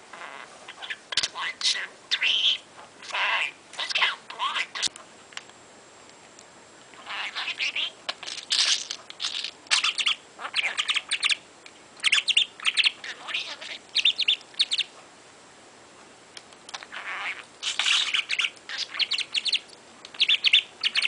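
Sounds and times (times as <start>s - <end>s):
budgerigar chirping and warbling: 0.2s - 4.9s, 7.0s - 11.4s, 12.0s - 14.9s, 16.8s - 21.0s.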